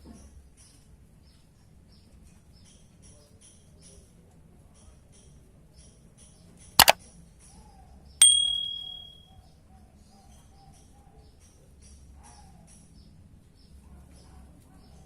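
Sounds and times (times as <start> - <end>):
faint rapid high chirping: 8.2 - 9.2
metallic ding: 8.2 - 9.2.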